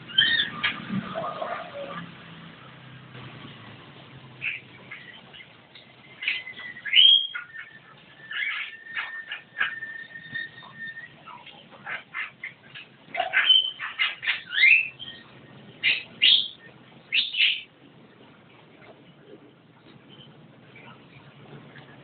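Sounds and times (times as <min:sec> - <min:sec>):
myna calling with whistles: 0:04.4 - 0:17.7.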